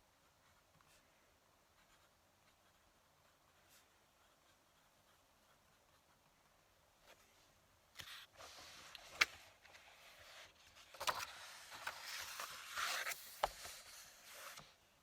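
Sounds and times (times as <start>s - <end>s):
paper rustling and scraping: 8.0s - 14.7s.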